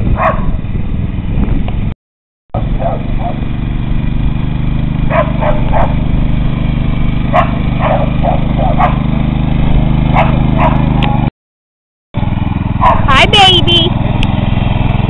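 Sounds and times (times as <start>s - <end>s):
dog barking in sharp yips: 0.2s - 0.5s, 5.1s - 6.0s, 7.3s - 9.0s, 10.1s - 10.9s, 12.8s - 13.1s
mini bike engine running: 2.6s - 11.3s, 12.2s - 15.0s.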